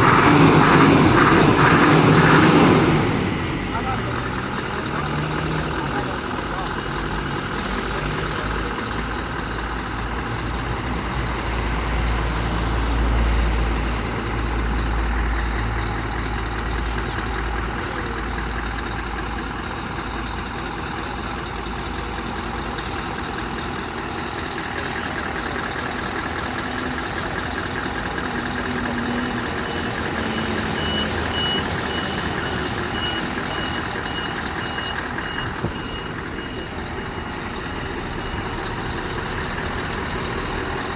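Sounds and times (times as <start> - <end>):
truck diesel engine rumbling: 0.0 - 40.9
reversing alarm beeps: 16.9 - 40.8.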